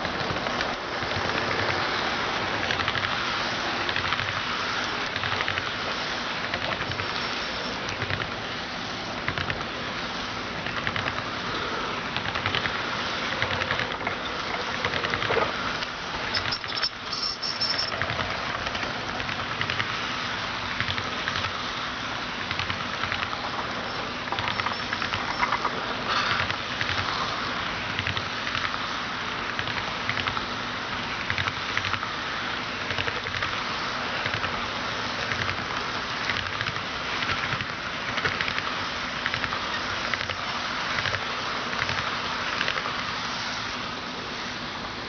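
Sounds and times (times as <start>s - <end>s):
faint motor hum: 0.0s - 45.0s
model train wheels clattering: 10.6s - 20.0s, 22.4s - 27.4s.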